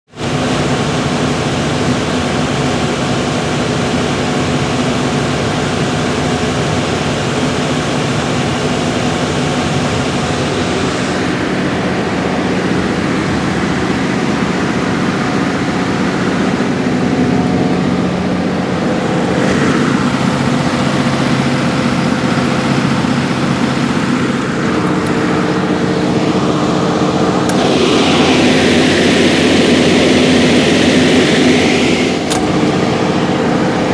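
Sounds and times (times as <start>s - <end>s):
diesel generator running: 0.1s - 33.9s
loud hissing: 17.8s - 33.9s.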